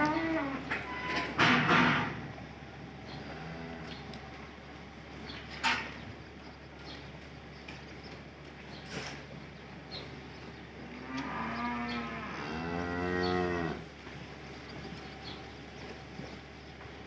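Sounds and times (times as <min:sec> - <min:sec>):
cow mooing: 0:00.0 - 0:02.2, 0:03.1 - 0:04.2, 0:10.8 - 0:13.9.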